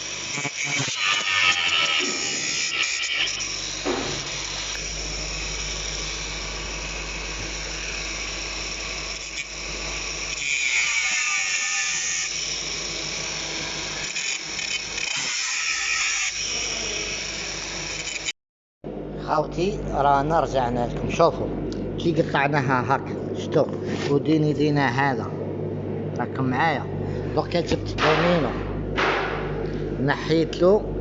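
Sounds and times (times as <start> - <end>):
power tool cutting metal whine: 0.0 - 18.4.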